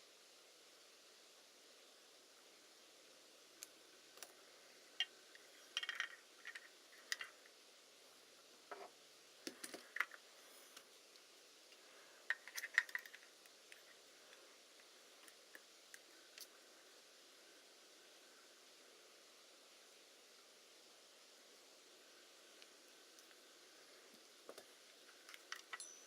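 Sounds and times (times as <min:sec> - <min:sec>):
metal parts clicking and clinking: 0:12.3 - 0:13.3, 0:25.2 - 0:26.0.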